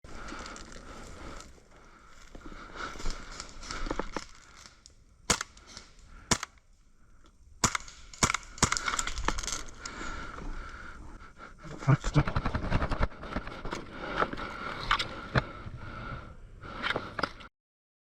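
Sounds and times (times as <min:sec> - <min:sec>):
airsoft gun shots: 0:06.3 - 0:06.5, 0:07.6 - 0:08.8.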